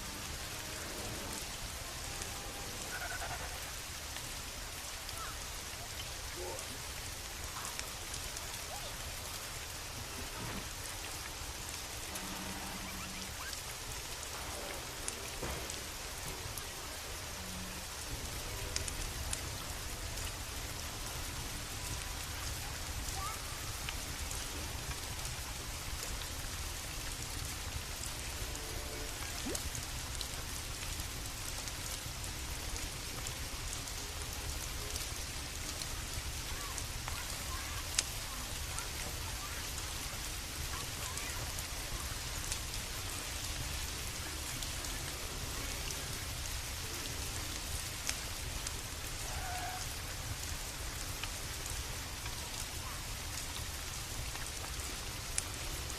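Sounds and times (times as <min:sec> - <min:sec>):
sharp drip-like ticks: 0:00.0 - 0:55.9
steady rain falling: 0:00.0 - 0:55.9.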